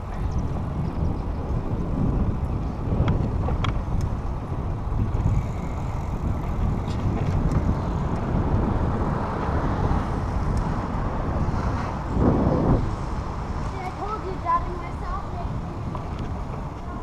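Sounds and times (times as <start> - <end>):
bicycle tyre noise: 0.0 - 17.0
wind on microphone: 0.0 - 17.0.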